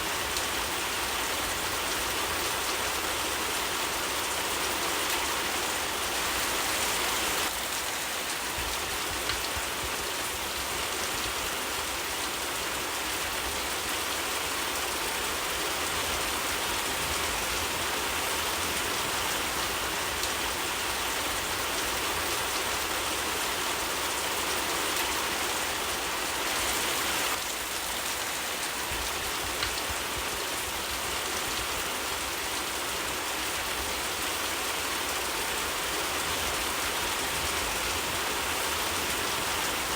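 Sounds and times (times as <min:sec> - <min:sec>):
rain falling: 0:00.0 - 0:39.9
raindrop ticks: 0:08.6 - 0:10.1, 0:28.9 - 0:30.4.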